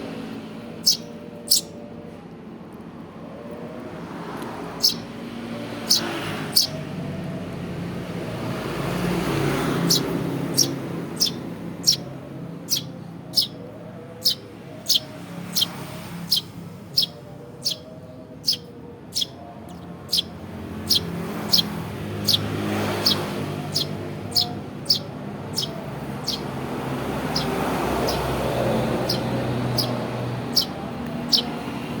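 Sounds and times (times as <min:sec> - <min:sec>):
road traffic hum: 0:00.0 - 0:32.0
sparrow cheeping: 0:00.8 - 0:01.8, 0:04.8 - 0:05.1, 0:05.8 - 0:06.8, 0:09.7 - 0:26.5, 0:27.2 - 0:31.6.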